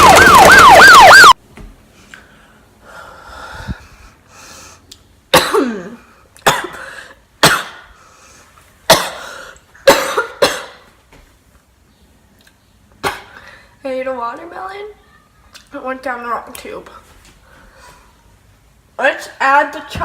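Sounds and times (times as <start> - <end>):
person coughing: 5.3 - 7.9, 8.9 - 10.8, 13.0 - 13.4.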